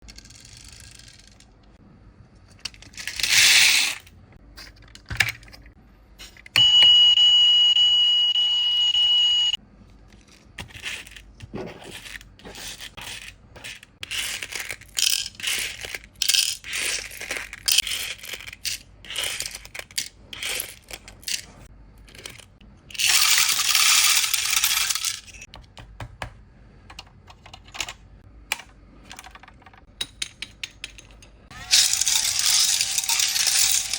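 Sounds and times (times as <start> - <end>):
toy parts clicking and clinking: 0.0 - 1.5, 2.6 - 6.4, 10.1 - 11.3, 11.9 - 25.5, 26.9 - 33.9
high electronic beep: 6.6 - 9.6.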